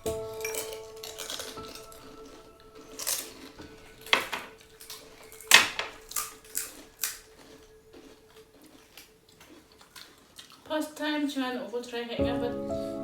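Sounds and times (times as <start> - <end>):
dishes and utensils clinking: 0.0 - 7.8.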